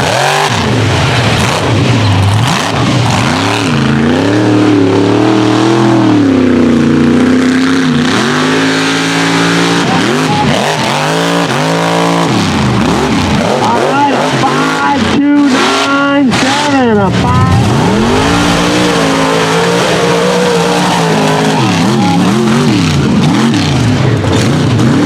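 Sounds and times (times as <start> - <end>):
truck engine revving hard: 0.0 - 25.0.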